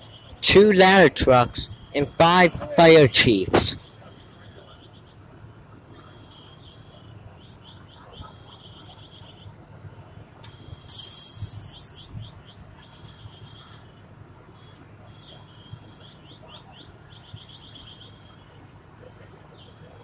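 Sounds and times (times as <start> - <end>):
loud hiss: 10.9 - 12.0
songbird chirping trills: 14.6 - 18.5.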